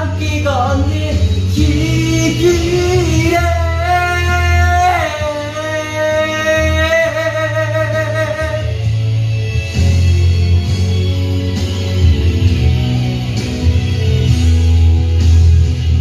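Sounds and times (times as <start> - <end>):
person singing with vibrato: 0.0 - 9.0
guitar and bass backing track: 0.0 - 16.0.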